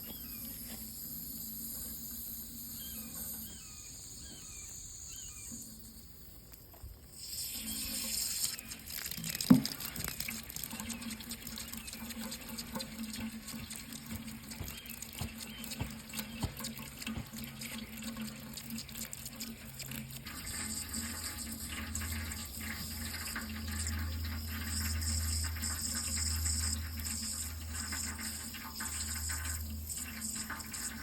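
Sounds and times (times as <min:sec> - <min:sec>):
running water rushing: 0:07.2 - 0:31.0.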